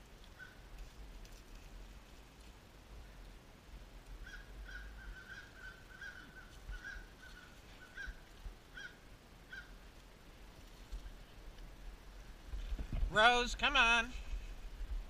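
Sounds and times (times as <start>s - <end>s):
bird calling: 4.2s - 9.8s.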